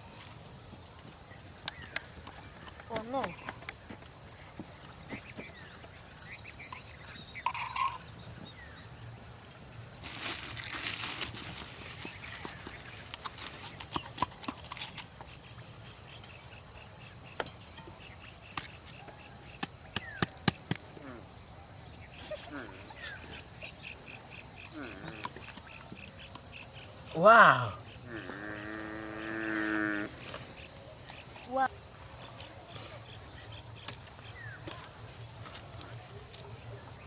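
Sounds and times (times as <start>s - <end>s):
noisy rustling: 9.6s - 14.1s.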